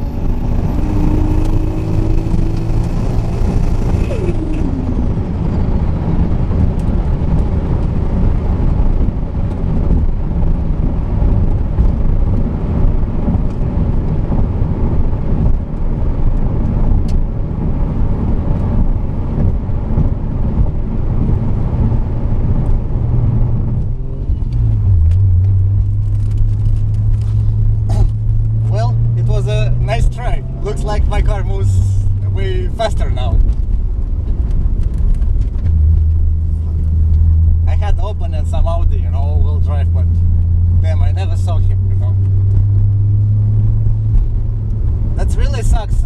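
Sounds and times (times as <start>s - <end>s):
car engine and road noise: 0.0s - 46.0s.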